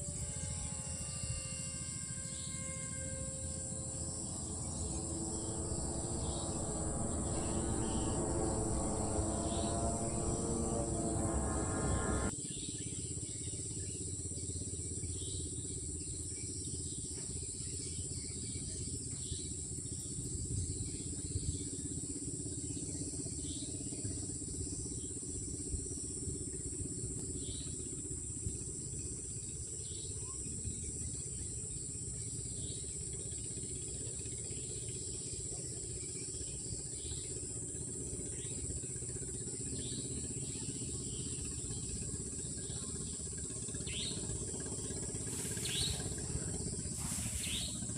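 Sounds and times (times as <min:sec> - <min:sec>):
crickets trilling: 0:00.2 - 0:12.3, 0:43.9 - 0:47.9
low rumble: 0:02.4 - 0:12.3, 0:41.4 - 0:47.9.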